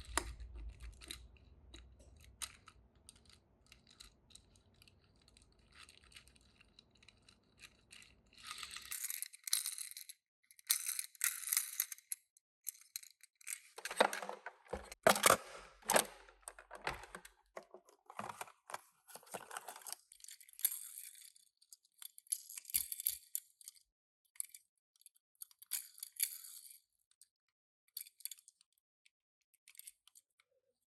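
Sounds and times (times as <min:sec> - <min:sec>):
toy cars clicking and knocking: 0:00.0 - 0:27.2
packaging rustling and tearing: 0:13.8 - 0:20.0.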